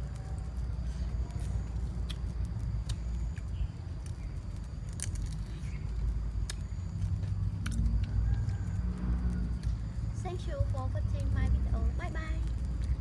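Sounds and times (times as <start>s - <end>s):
crab shell cracking and crunching: 0.0s - 10.0s
steady low rumble: 0.0s - 13.0s.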